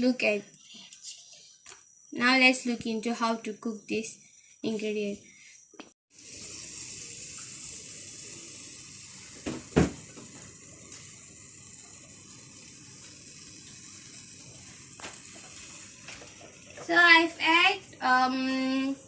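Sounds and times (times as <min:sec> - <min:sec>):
oil hissing in a pan: 0:06.1 - 0:19.0.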